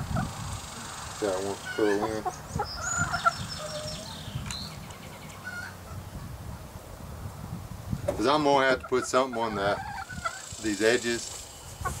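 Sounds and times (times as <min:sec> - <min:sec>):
low clucking bird calls: 0:00.0 - 0:06.6, 0:08.0 - 0:12.0
high bird chirps: 0:01.5 - 0:05.8.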